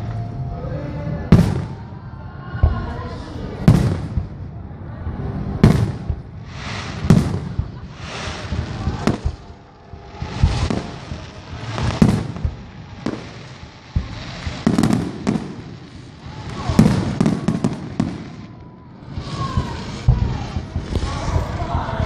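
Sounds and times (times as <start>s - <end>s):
fireworks booming: 1.3s - 22.0s
sharp firework cracks: 3.6s - 4.4s, 5.6s - 22.0s.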